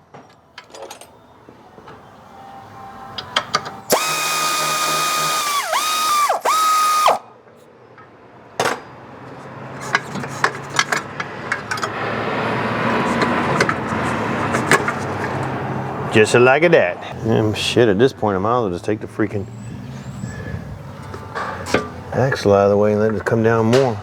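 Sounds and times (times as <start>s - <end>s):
impact wrench whine: 3.9s - 7.3s, 21.0s - 22.2s
metallic rattle: 20.9s - 22.5s.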